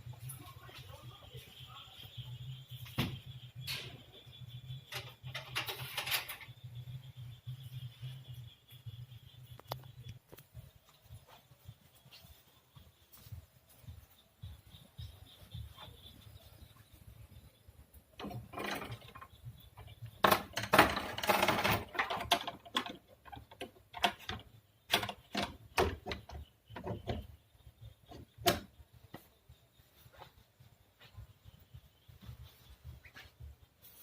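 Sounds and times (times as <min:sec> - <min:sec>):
objects clattering and knocking: 0:02.8 - 0:08.3, 0:18.1 - 0:29.3.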